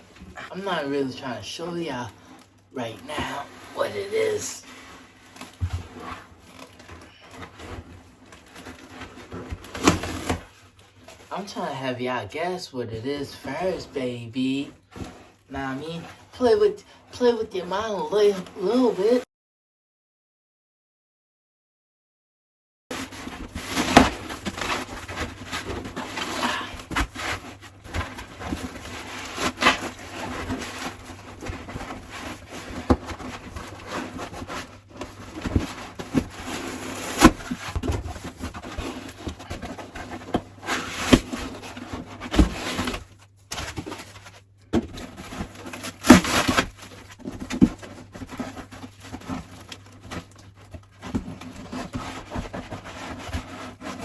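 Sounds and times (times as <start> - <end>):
cardboard packing rustling: 0.0 - 11.6, 13.3 - 16.8, 22.9 - 54.0
box thumps: 23.3 - 49.5.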